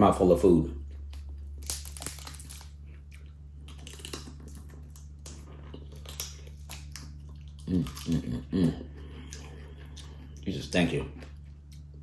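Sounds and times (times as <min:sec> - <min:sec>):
person chewing crab meat: 0:00.8 - 0:12.0
small crunches and clicks: 0:01.0 - 0:08.4
wet mouth sounds: 0:02.8 - 0:10.4.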